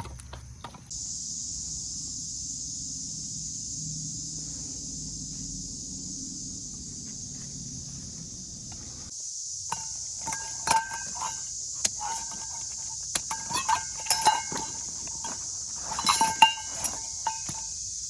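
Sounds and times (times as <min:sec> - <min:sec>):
steady high hiss: 0:00.6 - 0:18.0
metal parts clinking together: 0:09.7 - 0:17.9.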